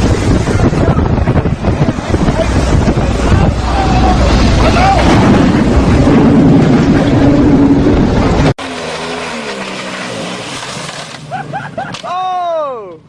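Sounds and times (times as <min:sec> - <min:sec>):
wind noise on microphone: 0:00.0 - 0:08.6
boat engine running: 0:00.0 - 0:11.8.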